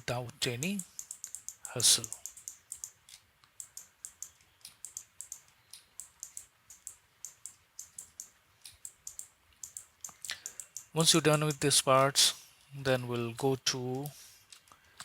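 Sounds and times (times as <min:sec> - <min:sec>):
computer mouse clicking: 0:00.6 - 0:12.2.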